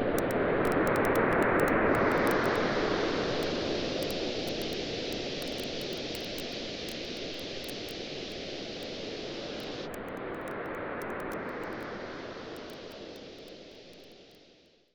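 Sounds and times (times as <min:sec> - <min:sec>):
campfire crackling: 0:03.3 - 0:11.8.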